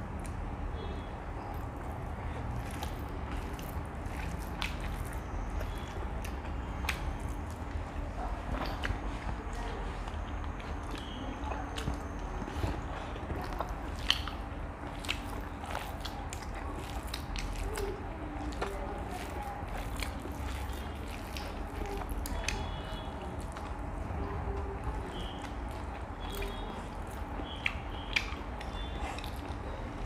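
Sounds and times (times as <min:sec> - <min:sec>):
people chewing food: 0:00.0 - 0:30.0
wet lip smacks: 0:25.1 - 0:29.6.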